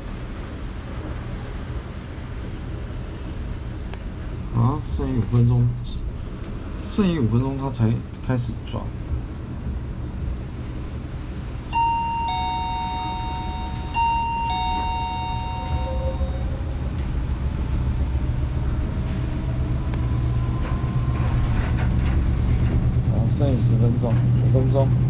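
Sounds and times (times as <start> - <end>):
washing machine spin rumble: 10.2 - 16.4
two-note electronic chime: 11.7 - 16.7.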